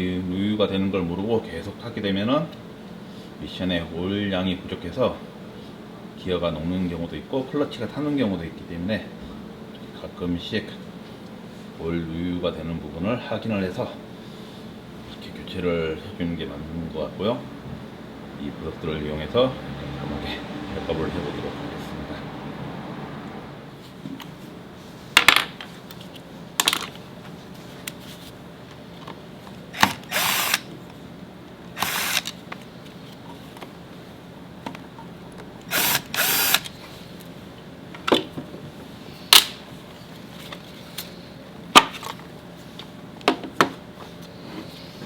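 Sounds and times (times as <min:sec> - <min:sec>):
power drill running: 0:29.7 - 0:30.7, 0:31.8 - 0:32.4, 0:35.6 - 0:36.8.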